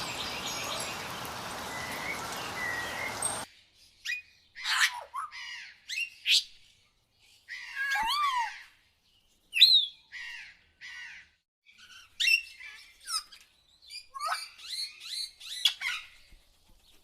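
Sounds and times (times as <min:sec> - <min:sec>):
outdoor hiss: 0:00.0 - 0:03.5
loud close bird calls: 0:00.0 - 0:06.7, 0:07.3 - 0:08.8, 0:09.5 - 0:16.3.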